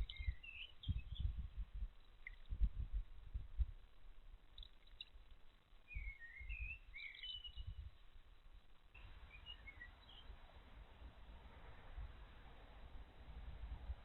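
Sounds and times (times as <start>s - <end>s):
small birds chirping: 0.0s - 2.9s, 3.8s - 10.8s
low rumble: 0.0s - 4.5s.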